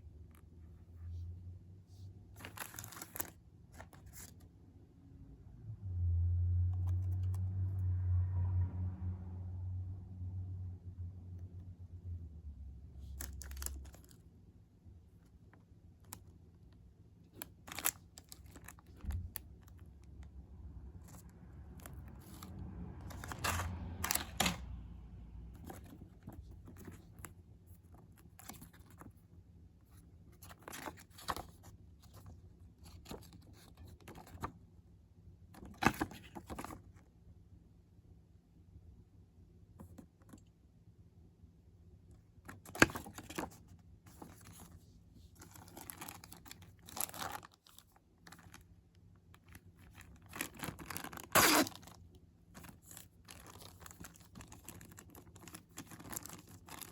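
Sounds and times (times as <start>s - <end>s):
packaging rustling: 2.4s - 4.3s, 42.6s - 48.6s, 49.4s - 56.9s.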